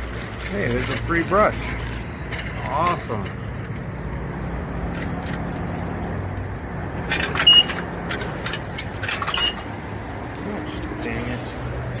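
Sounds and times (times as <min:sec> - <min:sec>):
metal coins clinking: 0:00.0 - 0:03.9, 0:07.0 - 0:12.0.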